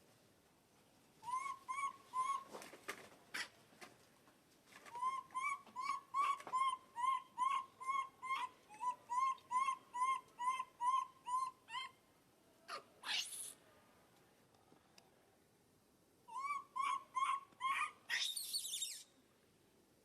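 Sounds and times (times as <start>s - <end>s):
baby monkey crying: 1.2s - 2.4s, 5.0s - 12.0s, 12.7s - 13.6s, 16.3s - 19.0s.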